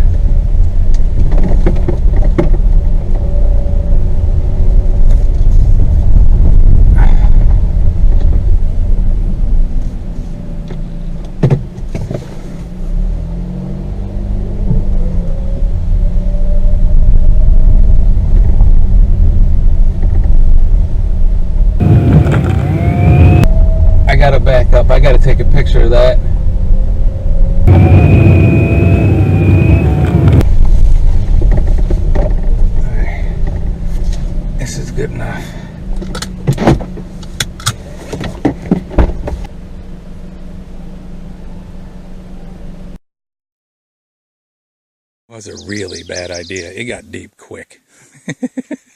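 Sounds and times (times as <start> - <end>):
car rumbling on dirt trail: 0.0 - 43.0
hiss with rising whine: 26.3 - 30.4.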